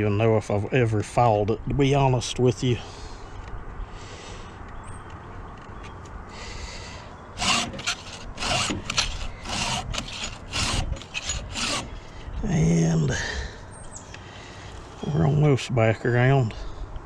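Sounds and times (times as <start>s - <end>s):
file rasping on saw chain: 7.4s - 12.0s.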